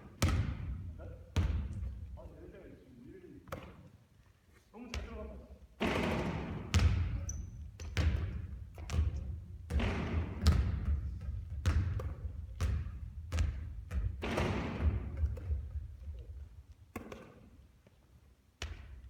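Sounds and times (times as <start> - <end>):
basketball bouncing on court: 0.0 - 2.1, 5.8 - 17.6, 18.6 - 19.0.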